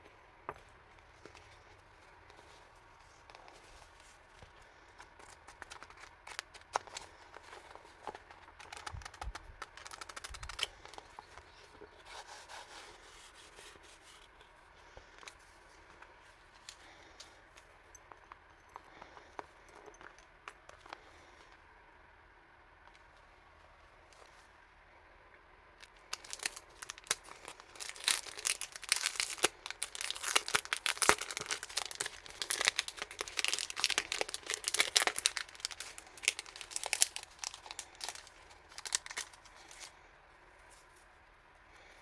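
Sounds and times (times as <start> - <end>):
packaging rustling: 1.1 - 17.3, 25.8 - 40.0.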